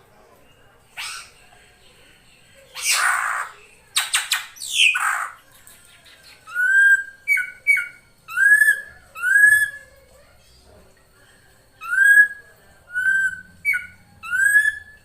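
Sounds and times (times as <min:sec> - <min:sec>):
drongo harsh rasping calls: 0:01.0 - 0:01.4, 0:02.8 - 0:05.4.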